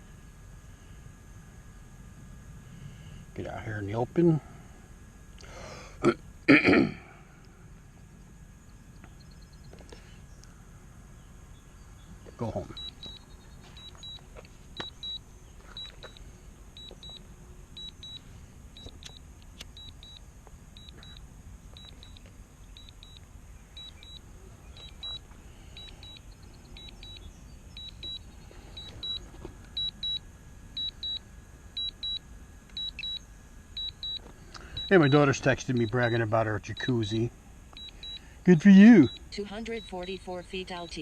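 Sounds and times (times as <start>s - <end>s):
remote controller double beeps: 23.8s - 24.2s, 32.8s - 33.2s, 34.8s - 36.0s, 39.0s - 40.2s.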